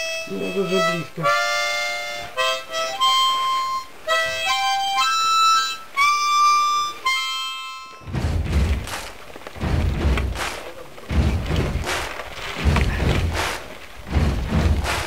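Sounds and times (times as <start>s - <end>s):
harmonica playing slow tune: 0.0s - 8.1s
low rumbling thump: 8.0s - 15.0s.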